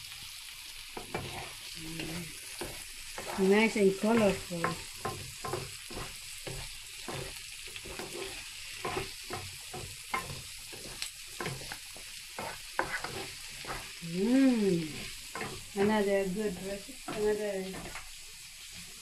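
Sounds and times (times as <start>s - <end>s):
vegetables sizzling in a pan: 0.0s - 19.0s
wooden spatulas scraping a pan: 1.0s - 14.0s, 14.8s - 19.0s
voice: 1.8s - 2.3s, 3.2s - 4.8s, 14.0s - 15.1s, 15.8s - 17.9s.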